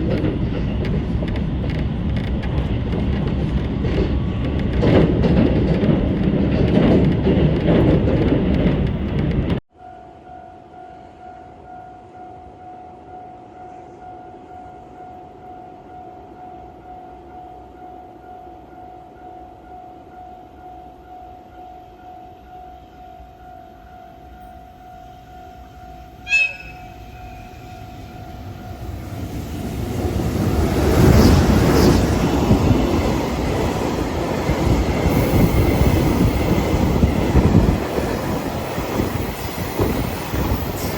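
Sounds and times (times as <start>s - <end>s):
freight train rumble: 0.0s - 9.6s, 23.2s - 40.9s
locomotive horn toot: 26.2s - 27.9s.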